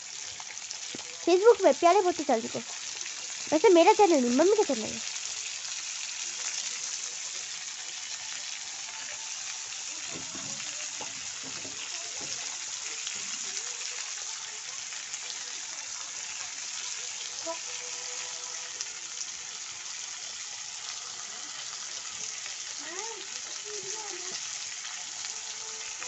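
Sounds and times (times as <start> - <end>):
vegetables sizzling in oil: 0.0 - 26.0.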